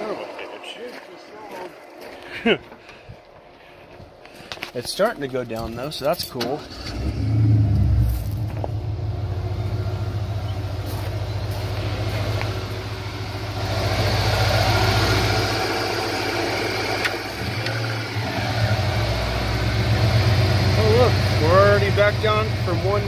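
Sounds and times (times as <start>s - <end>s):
car engine idling: 6.6s - 23.0s.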